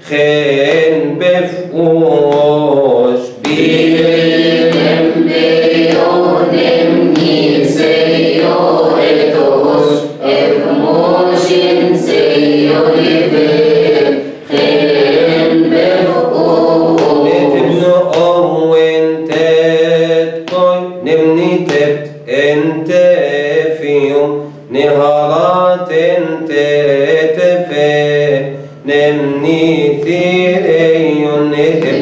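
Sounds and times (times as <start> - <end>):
a cappella chanted hymn: 0.0 - 32.0.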